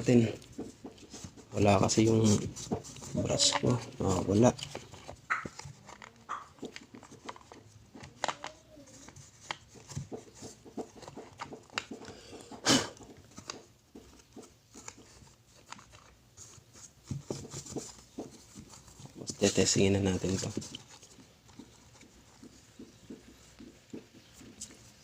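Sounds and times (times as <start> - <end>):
hands handling plastic parts: 0.0 - 25.0.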